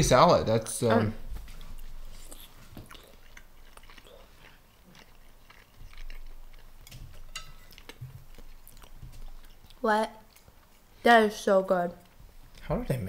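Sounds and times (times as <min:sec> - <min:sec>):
person chewing: 0:01.5 - 0:10.9.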